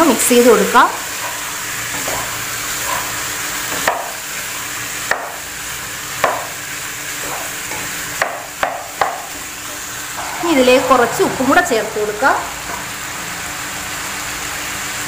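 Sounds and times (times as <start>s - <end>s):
food frying sizzle: 0.0s - 15.0s
spatula knocking against pan: 6.2s - 6.5s, 7.7s - 9.4s.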